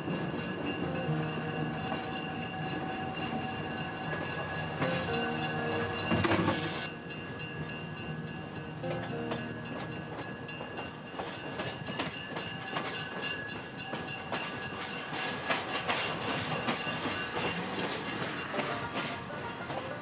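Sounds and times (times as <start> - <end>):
wheels rumbling on rail: 0.0 - 20.0
clickety-clack over rail joints: 8.9 - 20.0.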